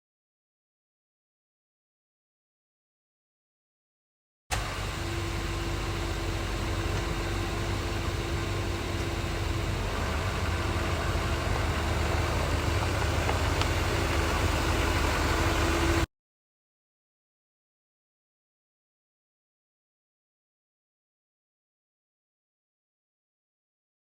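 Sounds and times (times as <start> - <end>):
truck engine idling: 4.6 - 16.1
faint steady whine: 4.8 - 16.1.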